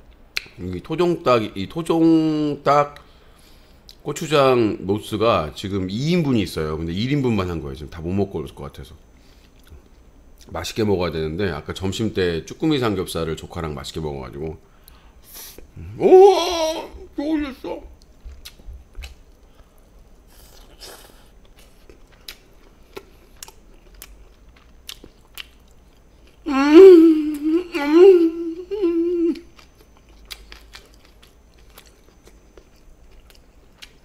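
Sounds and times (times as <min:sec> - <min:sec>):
wet chewing with mouth clicks: 0:17.9 - 0:26.4, 0:29.3 - 0:34.0
person humming mmm: 0:26.4 - 0:29.6.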